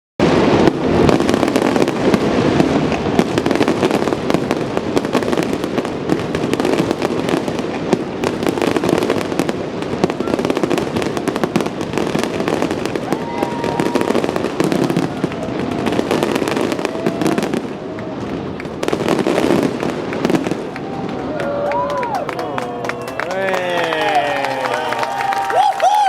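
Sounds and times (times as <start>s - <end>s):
fireworks cracking and popping: 0.2s - 26.0s.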